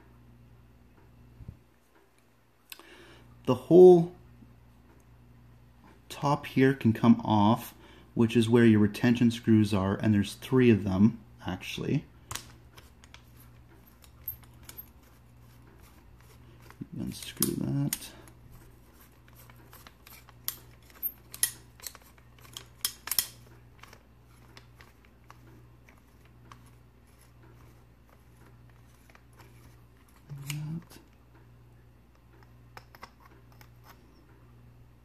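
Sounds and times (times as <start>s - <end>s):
small metal parts clicking: 12.3s - 15.2s, 19.3s - 26.7s.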